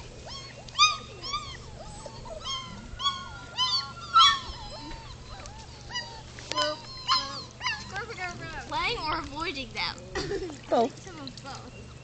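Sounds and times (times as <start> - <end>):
puppies whining and yelping: 0.0 - 9.2.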